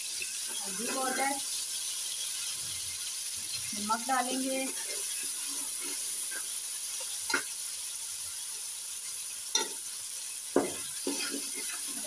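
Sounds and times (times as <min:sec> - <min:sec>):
ladle stirring in pan: 0:00.0 - 0:07.6, 0:09.5 - 0:09.8, 0:10.5 - 0:12.0
onion and tomato sizzling in oil: 0:00.0 - 0:12.0.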